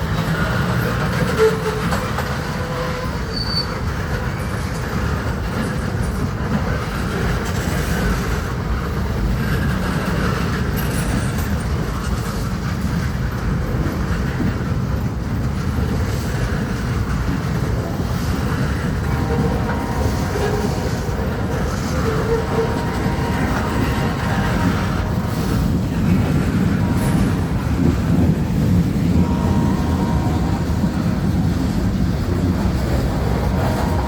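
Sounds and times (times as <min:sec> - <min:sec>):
train wheels rumbling on rail: 0:00.0 - 0:34.0
high wheel squeal: 0:01.3 - 0:03.9, 0:19.0 - 0:28.3, 0:29.0 - 0:31.4, 0:32.8 - 0:34.0.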